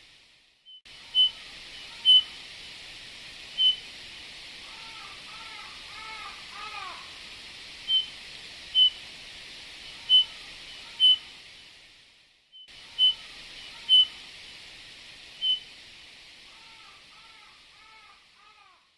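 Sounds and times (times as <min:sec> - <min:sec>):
steady hiss: 0:00.0 - 0:18.9
bird whistled calls: 0:00.7 - 0:02.3, 0:03.6 - 0:03.9, 0:07.9 - 0:09.0, 0:10.0 - 0:11.3, 0:12.6 - 0:14.2, 0:15.4 - 0:15.7.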